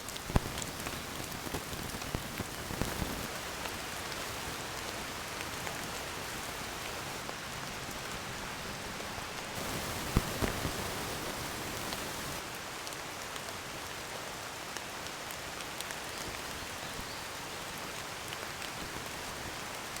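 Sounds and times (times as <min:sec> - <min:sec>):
steady rain falling: 0:00.0 - 0:20.0
raindrops ticking: 0:00.1 - 0:05.8, 0:09.6 - 0:12.4.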